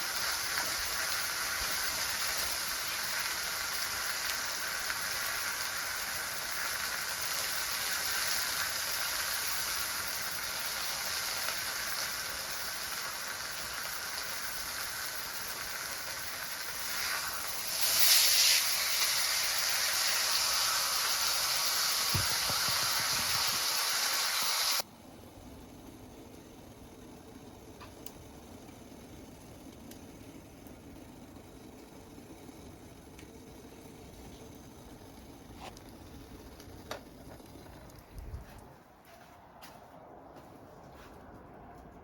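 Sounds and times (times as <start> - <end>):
meat sizzling in a pan: 0.0 - 24.9.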